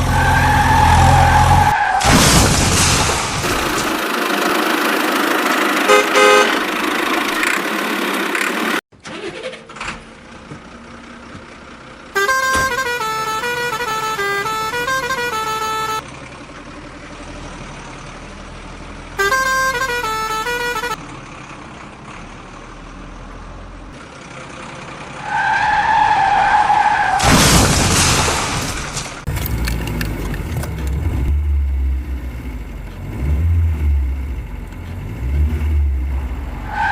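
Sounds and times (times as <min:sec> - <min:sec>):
loud rush of vehicle: 0:00.0 - 0:36.9
steady horn blast: 0:05.8 - 0:06.8, 0:12.2 - 0:16.0, 0:19.2 - 0:21.0
horn playing stepped melody: 0:05.9 - 0:06.6, 0:12.2 - 0:16.0, 0:19.2 - 0:21.0.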